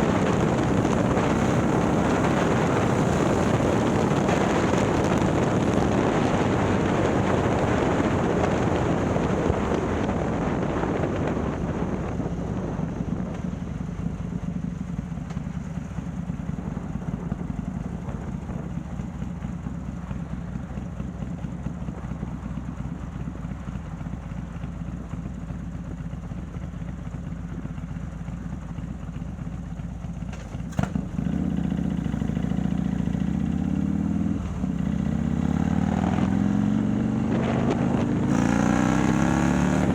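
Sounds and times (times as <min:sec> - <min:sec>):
wind rush: 0:00.0 - 0:14.1
motorcycle engine running: 0:00.0 - 0:39.9.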